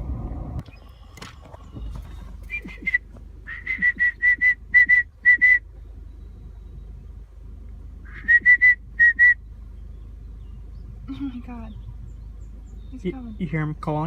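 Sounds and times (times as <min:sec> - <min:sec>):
bird whistling calls: 0:00.7 - 0:07.0, 0:08.0 - 0:10.8.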